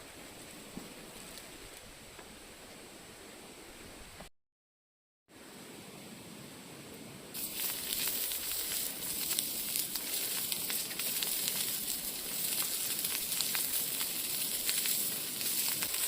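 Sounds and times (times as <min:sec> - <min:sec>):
food sizzling on griddle: 0:07.4 - 0:16.0
wood fire crackling pops: 0:07.4 - 0:16.0.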